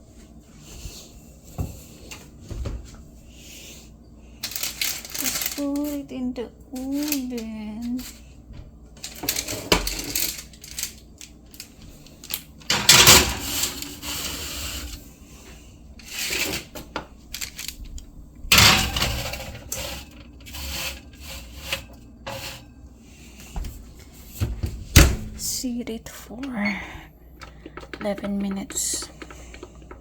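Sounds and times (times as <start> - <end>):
oven door and tray clattering: 12.6 - 15.0, 18.4 - 22.7
metal clanks and knocks: 18.5 - 20.3.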